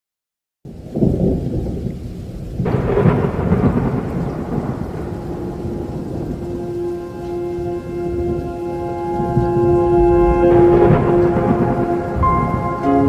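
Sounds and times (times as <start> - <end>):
rain: 0.7 - 13.0
thunder rumbling: 0.7 - 13.0
steady low held note: 5.1 - 13.0.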